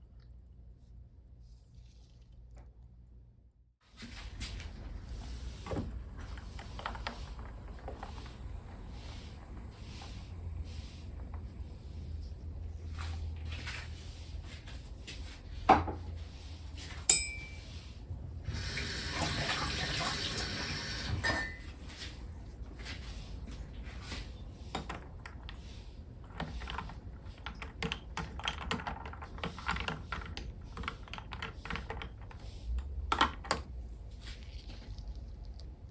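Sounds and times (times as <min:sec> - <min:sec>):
dishes clinking: 0:17.1 - 0:17.8.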